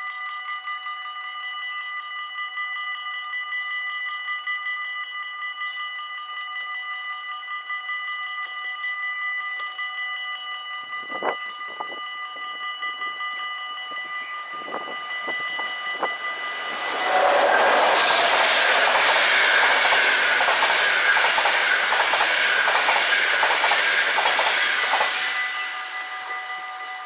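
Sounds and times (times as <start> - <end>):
level-crossing warning bells: 0.0 - 27.0
train wheels clicking over rail joints: 17.0 - 26.1.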